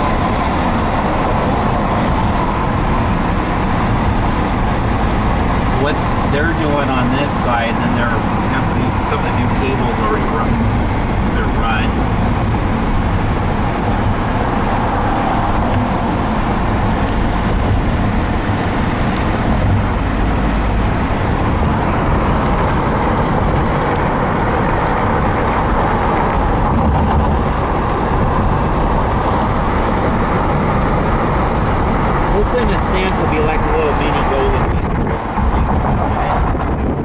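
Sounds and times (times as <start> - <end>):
car interior road and engine noise: 0.0 - 37.0.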